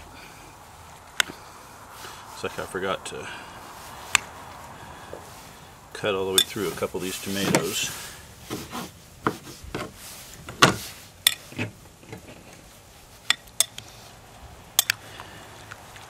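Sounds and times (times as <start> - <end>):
soft scraping: 0.2 - 11.2.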